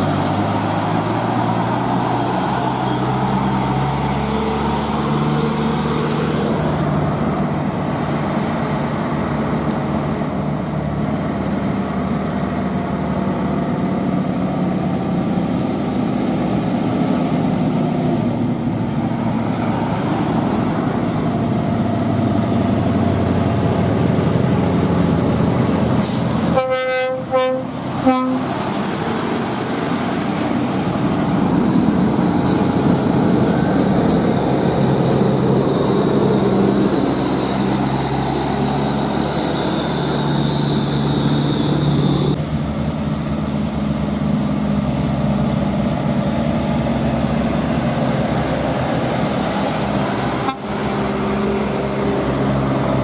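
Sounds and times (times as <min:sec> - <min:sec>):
diesel truck engine running: 0:00.0 - 0:53.0
short horn toots: 0:26.0 - 0:28.5.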